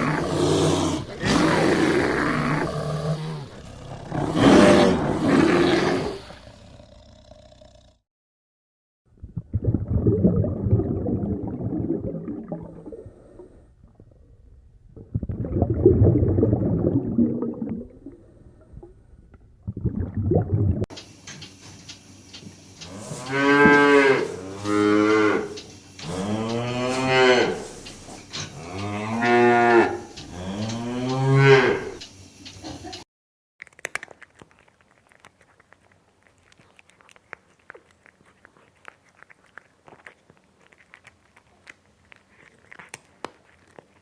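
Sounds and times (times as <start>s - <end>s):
rough low calls: 20.9s - 33.0s
cattle mooing: 22.8s - 32.0s.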